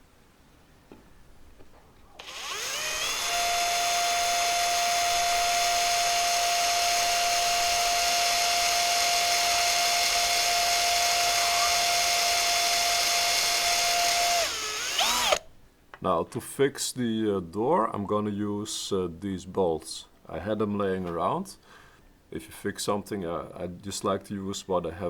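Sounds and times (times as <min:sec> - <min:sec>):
electric drill drilling metal: 0:02.2 - 0:15.5.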